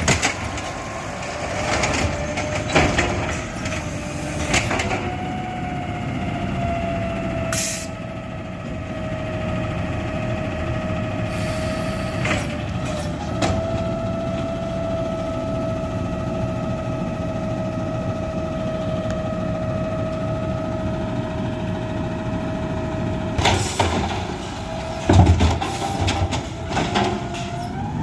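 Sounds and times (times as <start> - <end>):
garbage truck engine rumble: 0.0 - 28.0.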